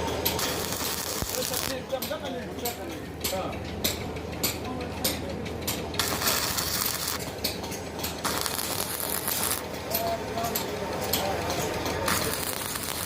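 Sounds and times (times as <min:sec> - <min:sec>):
crackling hiss: 0:00.4 - 0:01.7.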